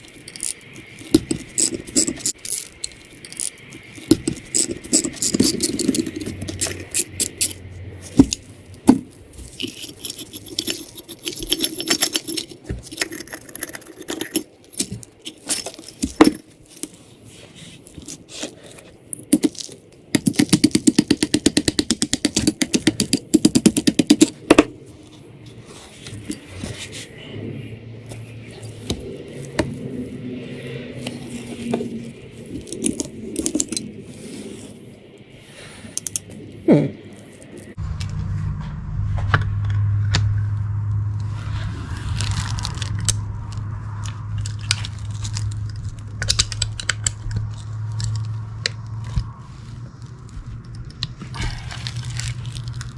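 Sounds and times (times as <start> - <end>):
metal tools clinking and scraping: 0.0 - 27.1, 28.1 - 34.8, 35.8 - 37.8.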